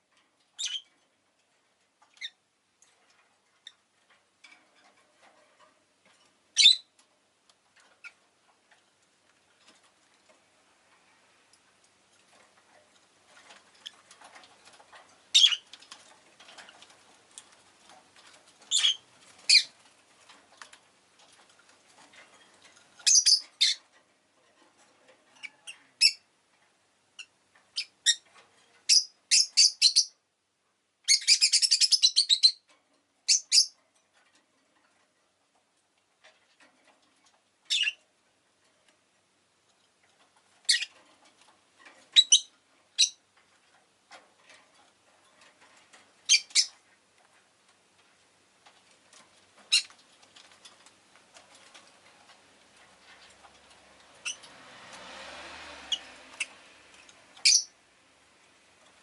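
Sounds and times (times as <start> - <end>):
lovebird chirping: 0.6 - 0.8, 6.6 - 6.9, 15.3 - 15.6, 18.7 - 19.7, 23.0 - 23.8, 28.9 - 30.2, 31.1 - 32.6, 33.3 - 33.8, 37.7 - 38.0, 40.7 - 40.9, 42.2 - 43.2, 46.3 - 46.8, 49.7 - 49.9, 57.4 - 57.8.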